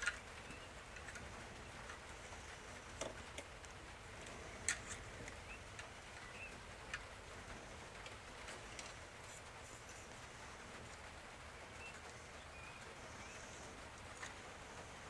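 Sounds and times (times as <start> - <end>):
bird chirps: 0.2 - 1.2, 4.8 - 6.6, 11.6 - 13.7.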